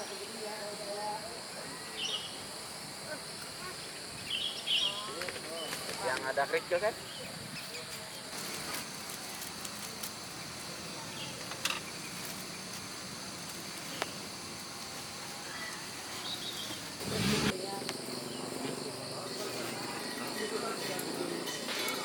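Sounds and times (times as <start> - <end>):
insects chirping: 0.0 - 22.0
outdoor background noise: 0.0 - 22.0.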